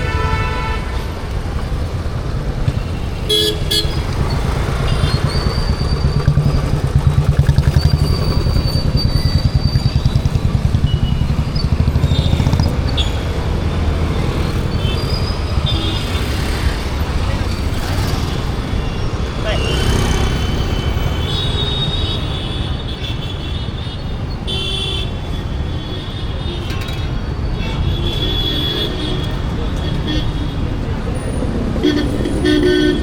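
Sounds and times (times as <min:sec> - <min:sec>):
vehicle horns tooting: 0:00.0 - 0:01.2, 0:02.7 - 0:06.6, 0:07.8 - 0:33.0
low traffic rumble: 0:00.0 - 0:33.0
motorcycles and vehicles passing: 0:00.0 - 0:33.0
close engine throbbing: 0:03.5 - 0:21.3.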